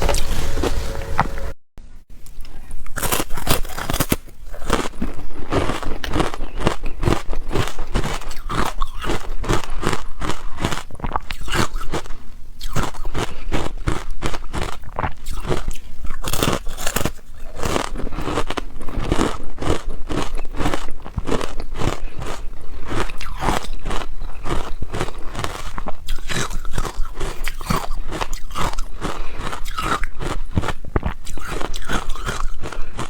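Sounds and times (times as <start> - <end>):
ice being chewed: 2.2 - 33.0.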